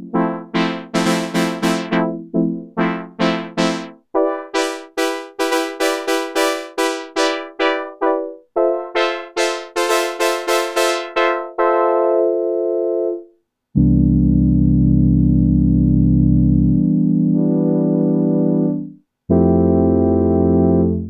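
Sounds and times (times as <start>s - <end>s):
synthesizer brass chord stabs: 0.2s - 2.2s, 2.8s - 12.6s, 17.3s - 21.0s.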